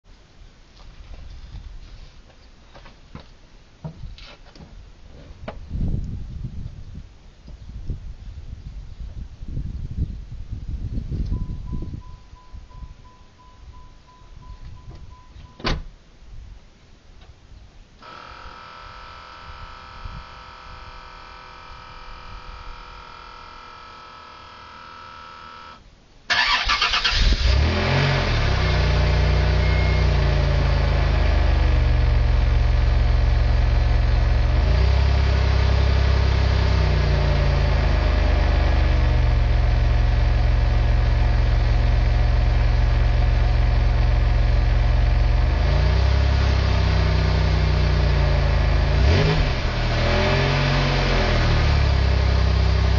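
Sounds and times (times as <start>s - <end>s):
faint steady hum: 9.6s - 26.3s
car engine revving: 19.6s - 52.9s.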